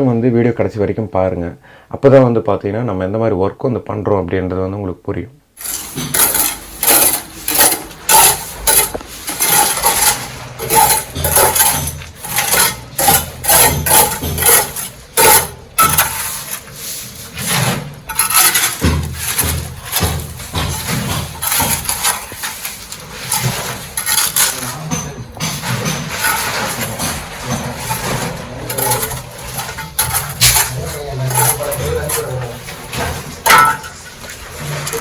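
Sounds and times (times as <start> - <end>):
hammering on hard material: 5.6 - 16.7, 17.3 - 34.0.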